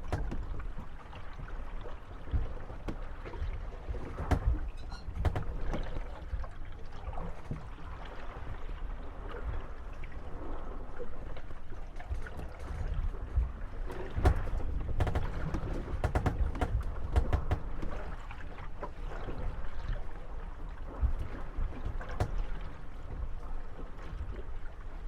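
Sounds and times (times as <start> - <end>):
boat hulls knocking together: 0.0 - 1.6, 2.2 - 7.7, 12.1 - 19.0, 20.9 - 23.2
wooden hulls creaking: 0.0 - 8.6, 12.0 - 19.7, 20.9 - 23.3
water lapping: 0.0 - 25.0.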